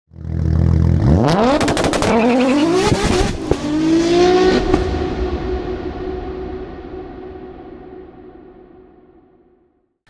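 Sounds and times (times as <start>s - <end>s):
car engine idling and revving: 0.1s - 7.3s.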